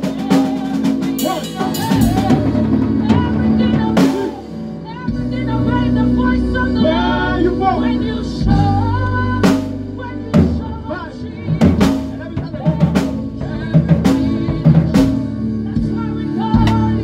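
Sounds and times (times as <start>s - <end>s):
drum kit hits: 0.0s - 5.3s, 11.5s - 15.5s
live band playing: 0.0s - 17.0s.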